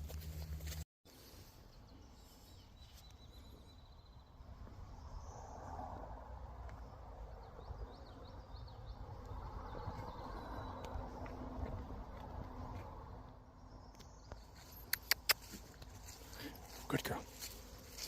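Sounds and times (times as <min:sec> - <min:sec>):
low wind rumble: 0:04.0 - 0:14.0.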